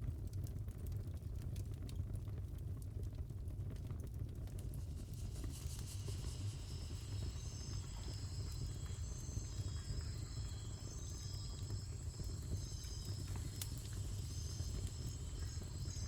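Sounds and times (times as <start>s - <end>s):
wood fire crackling: 4.7s - 16.0s
faint high chirping tones: 5.6s - 16.0s.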